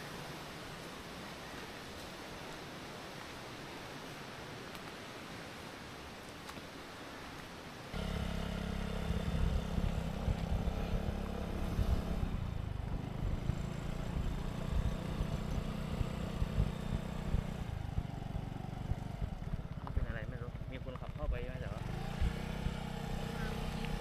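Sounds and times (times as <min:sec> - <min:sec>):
scooter engine running: 0:08.0 - 0:24.0.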